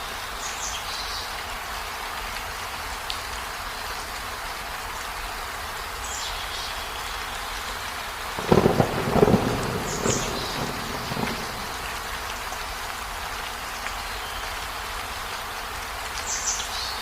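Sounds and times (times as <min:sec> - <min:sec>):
steady rain hiss: 0:00.0 - 0:17.0
thunder rumble: 0:08.4 - 0:12.6.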